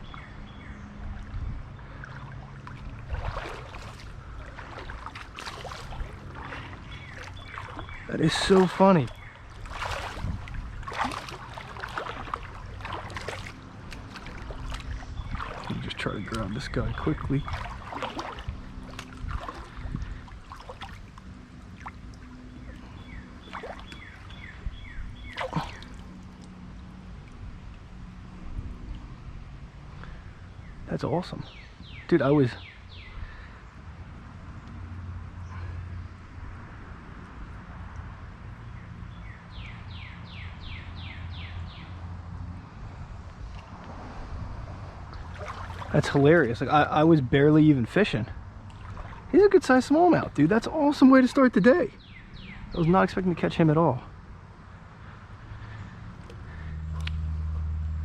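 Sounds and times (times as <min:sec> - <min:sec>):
creek water splashing: 0:00.0 - 0:30.5, 0:36.5 - 0:58.0
steady low rumble: 0:00.0 - 0:30.9.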